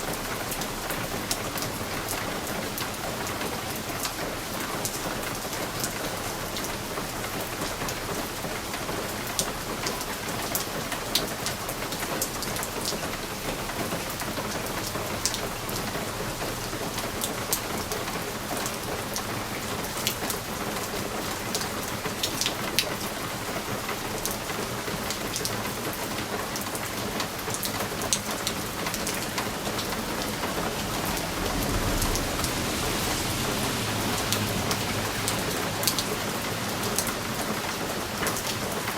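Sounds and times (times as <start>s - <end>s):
rain on a window pane: 0.0s - 38.9s
low rumble: 29.4s - 36.0s.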